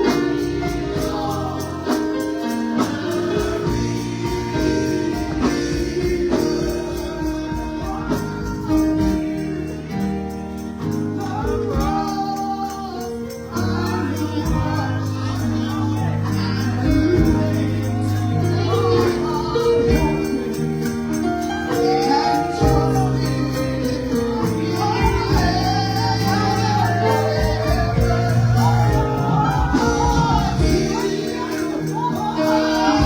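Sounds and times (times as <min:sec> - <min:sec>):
keyboard chords: 0:00.0 - 0:33.0
person singing hymn: 0:00.0 - 0:33.0
tambourine struck: 0:00.0 - 0:33.0.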